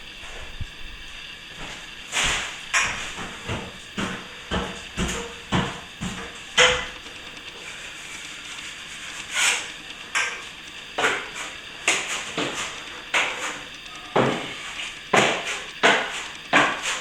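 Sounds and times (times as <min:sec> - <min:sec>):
metal tools scraping plaster: 0:07.6 - 0:17.0.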